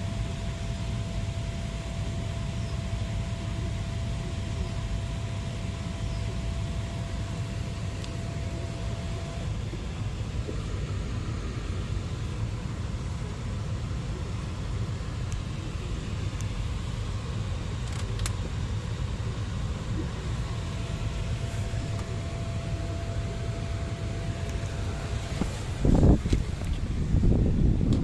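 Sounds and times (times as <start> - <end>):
low background rumble: 0.0 - 28.0
faint clicks: 17.8 - 18.4.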